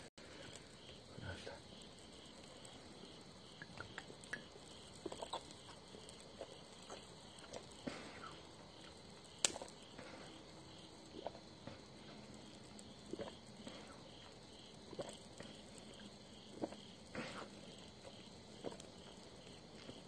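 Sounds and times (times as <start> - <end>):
faint insects chirping: 0.0 - 20.0
small clicks and taps: 3.6 - 6.2, 9.4 - 9.8.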